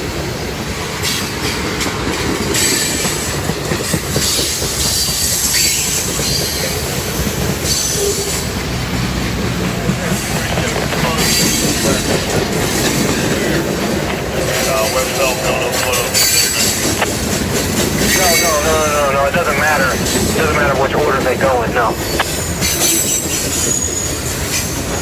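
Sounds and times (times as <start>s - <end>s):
steel wheels rumbling on rail: 0.0s - 25.0s.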